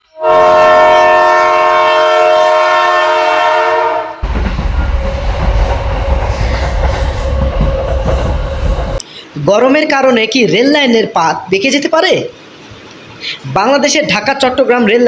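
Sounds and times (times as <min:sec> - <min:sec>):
train horn chord: 0:00.1 - 0:08.8
train rumbling along track: 0:00.3 - 0:09.6.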